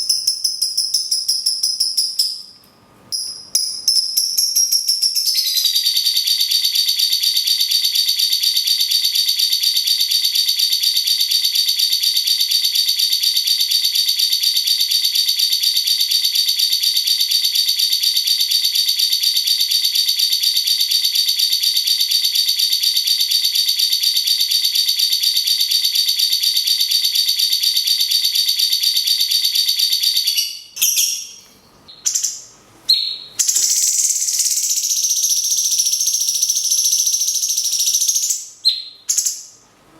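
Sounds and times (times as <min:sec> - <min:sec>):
lovebird rattling trill: 0:03.2 - 0:06.0, 0:33.4 - 0:38.5
short bird chirps: 0:30.3 - 0:35.7.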